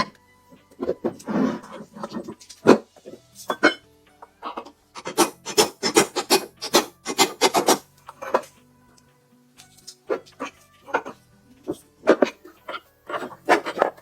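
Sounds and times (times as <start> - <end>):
file scraping metal: 0.8 - 3.8, 4.4 - 8.5, 10.1 - 14.0.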